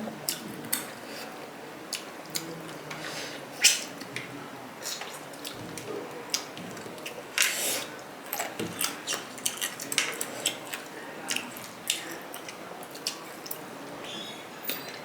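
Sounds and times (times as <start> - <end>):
wet squishing and chewing: 8.3 - 13.7.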